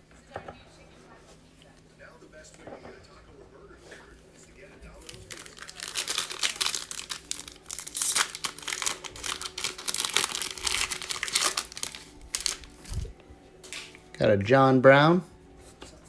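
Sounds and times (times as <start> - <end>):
foil wrapper tearing and crinkling: 5.0 - 13.1.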